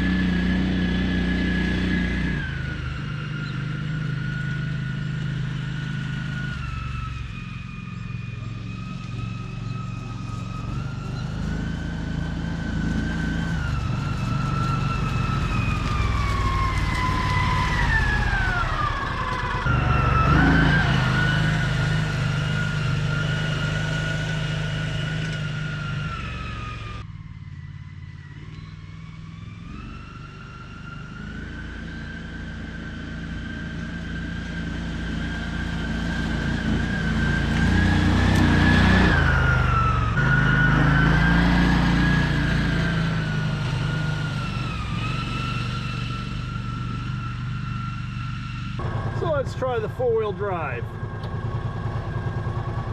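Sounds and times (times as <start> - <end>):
utility vehicle engine hum: 0.0 - 52.9
high whine: 42.2 - 52.9.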